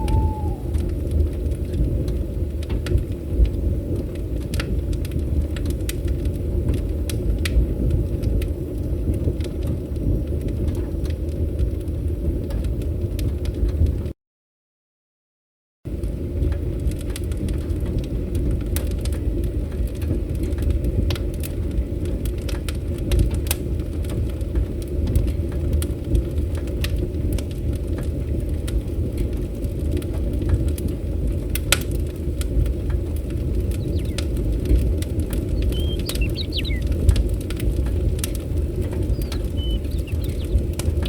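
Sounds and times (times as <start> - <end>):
bird chirp: 0.0 - 0.9, 33.6 - 34.5, 35.4 - 37.1, 38.8 - 41.0
low rumble: 0.0 - 1.1
wood fire crackling: 0.1 - 13.5, 16.0 - 41.0.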